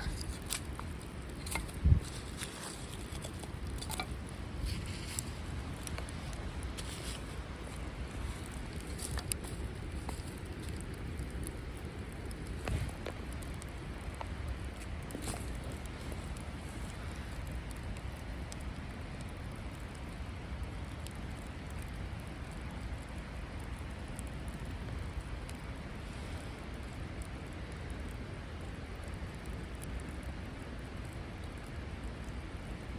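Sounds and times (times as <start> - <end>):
steady low rumble: 0.0 - 19.7
campfire crackling and popping: 0.0 - 32.9.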